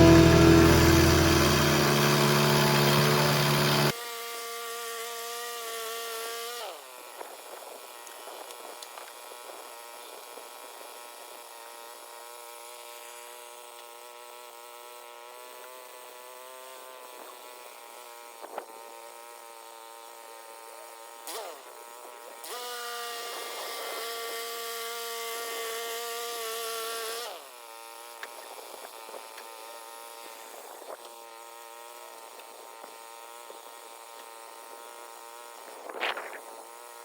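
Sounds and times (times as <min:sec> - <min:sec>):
sawmill engine running: 0:00.0 - 0:04.0.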